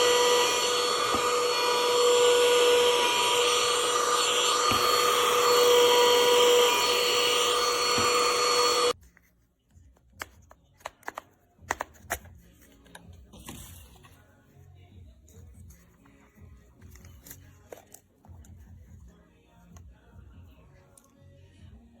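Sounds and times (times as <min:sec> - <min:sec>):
handheld vacuum whining: 0:00.0 - 0:09.0.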